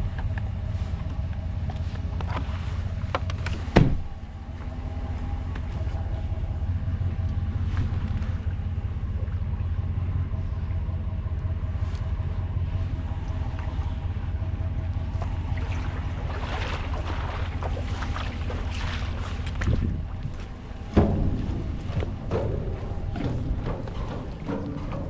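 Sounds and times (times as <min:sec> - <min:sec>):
engine running steadily: 0:00.0 - 0:25.0
wind buffeting microphone: 0:13.0 - 0:25.0.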